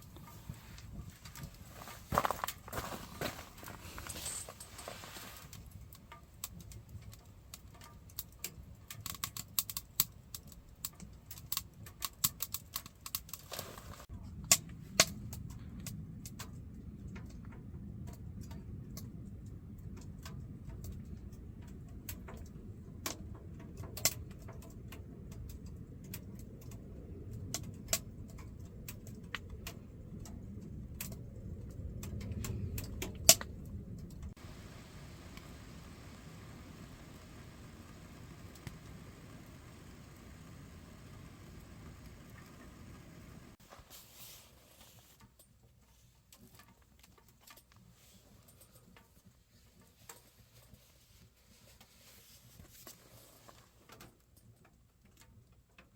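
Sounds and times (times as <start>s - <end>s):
wood stove low rumble: 0.0s - 45.1s
firewood crackling and popping: 0.0s - 55.9s.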